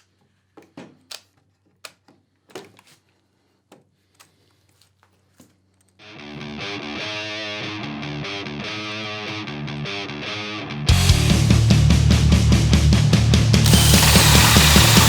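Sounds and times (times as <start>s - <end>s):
distorted electric guitar music: 6.1s - 12.5s, 13.6s - 15.0s.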